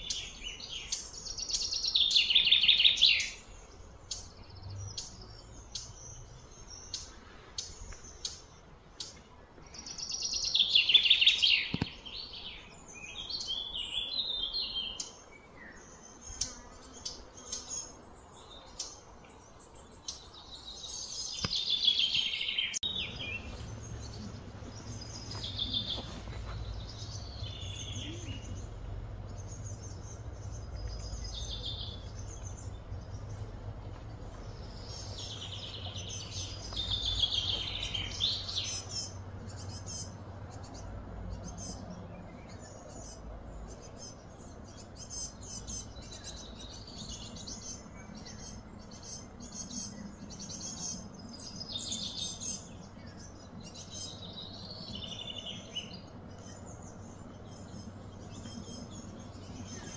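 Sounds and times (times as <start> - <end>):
songbirds chirping and singing: 0.0 - 59.9
steady low hum: 22.8 - 59.9.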